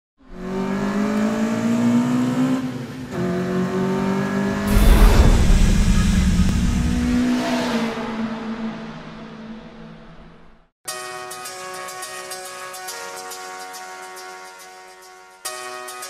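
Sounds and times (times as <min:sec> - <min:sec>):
car engine revving: 0:00.4 - 0:10.4
loud rushing whoosh with rumble: 0:04.6 - 0:08.3.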